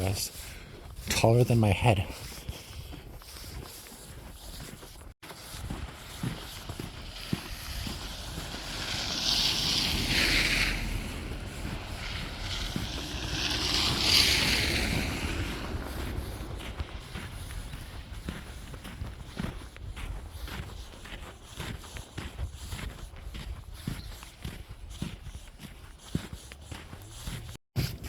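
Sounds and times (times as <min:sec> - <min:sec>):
tyres hissing on slushy road: 0:02.1 - 0:27.6.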